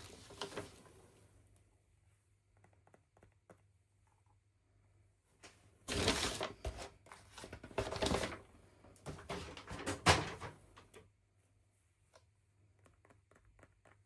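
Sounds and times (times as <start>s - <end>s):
packaging rustling and scraping: 0.0s - 0.9s, 5.9s - 8.4s.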